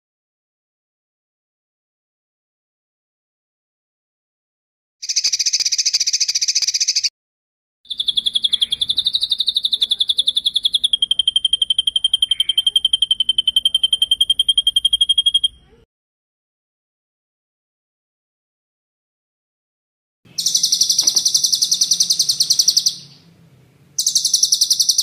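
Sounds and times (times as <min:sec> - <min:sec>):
songbird trills: 0:05.0 - 0:07.1, 0:07.9 - 0:15.8, 0:20.3 - 0:23.4, 0:24.0 - 0:25.0.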